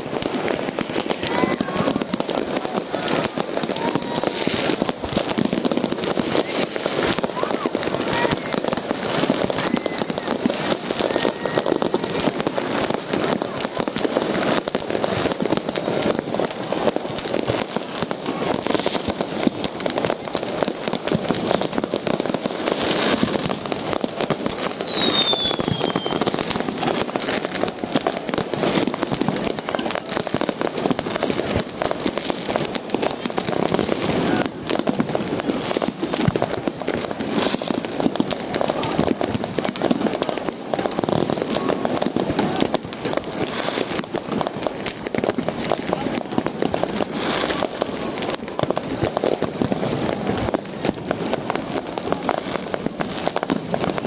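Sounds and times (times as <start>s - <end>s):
fireworks bangs and crackling: 0.0s - 54.0s
firework falling whistle: 24.4s - 27.5s, 37.3s - 38.0s.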